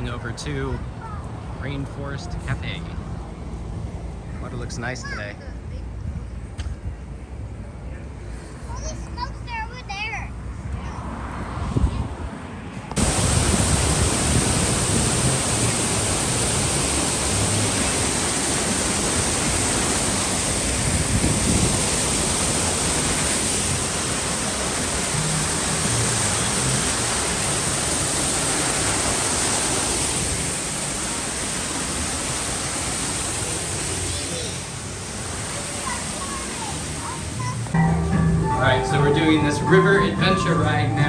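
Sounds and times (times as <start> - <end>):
rushing falling water: 13.0 - 37.8
faint music: 37.7 - 41.0.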